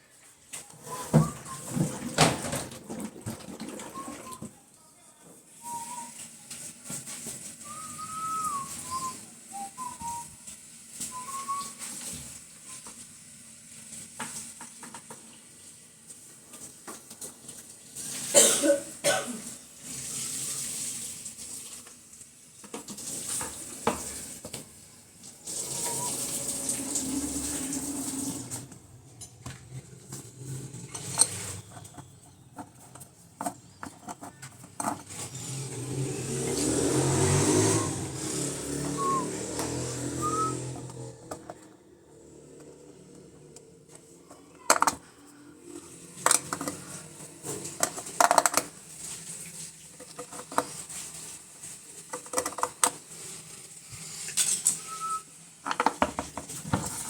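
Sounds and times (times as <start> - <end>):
short whistled tones: 0.8 - 1.8, 3.9 - 4.4, 5.5 - 6.3, 7.6 - 12.9, 25.6 - 26.3, 37.3 - 41.2, 54.6 - 55.4
hard parts clattering: 29.1 - 35.8.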